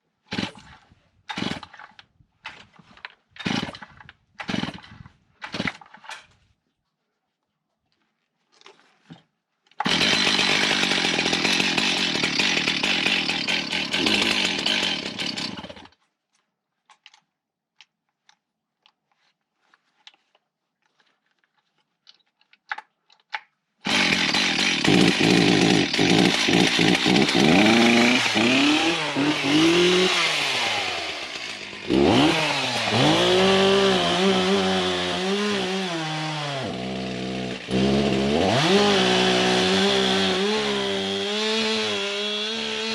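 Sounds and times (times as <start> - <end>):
chainsaw cutting: 0.3 - 1.8, 3.4 - 5.8, 9.8 - 15.9, 23.8 - 42.9.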